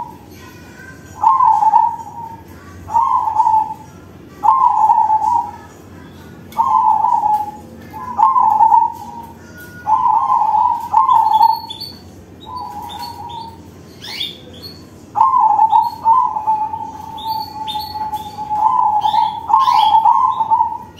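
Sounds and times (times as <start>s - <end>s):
dove cooing: 0.0s - 0.2s, 1.2s - 5.7s, 6.5s - 20.9s.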